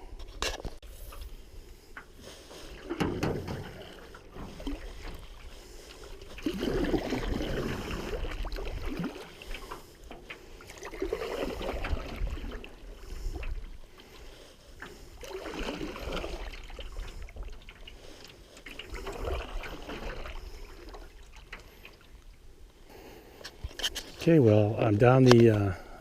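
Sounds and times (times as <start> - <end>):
paddle swishing through water: 0.0 - 24.6
wind rumble on microphone: 11.5 - 13.8.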